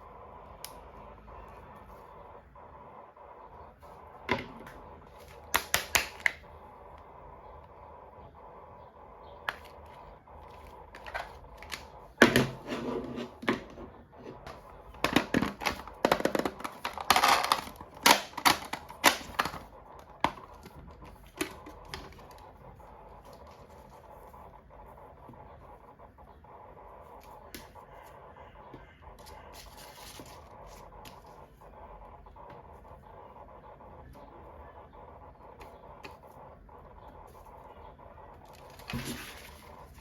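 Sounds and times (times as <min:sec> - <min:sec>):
plastic toys clicking and tapping: 0:05.2 - 0:07.1, 0:09.4 - 0:12.7, 0:14.4 - 0:24.1
plastic packaging rustling: 0:14.5 - 0:20.6, 0:38.5 - 0:40.0.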